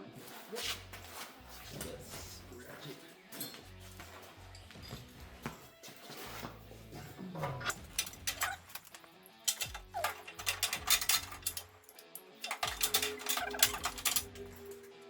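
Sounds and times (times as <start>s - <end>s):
rapid mechanical clicking and rattling: 7.7s - 14.8s.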